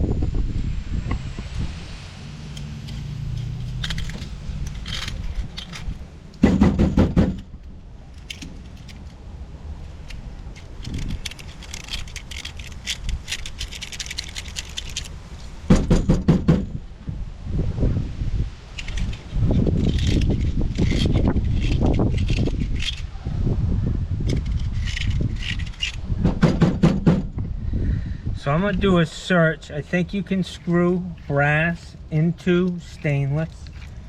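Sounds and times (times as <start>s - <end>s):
metal fittings clinking and scraping: 2.5s - 6.0s, 8.0s - 9.2s, 9.9s - 15.2s, 18.8s - 23.1s, 24.3s - 26.0s, 29.8s - 34.0s
metal fittings rattling: 2.5s - 9.2s, 10.0s - 15.2s, 24.3s - 26.0s.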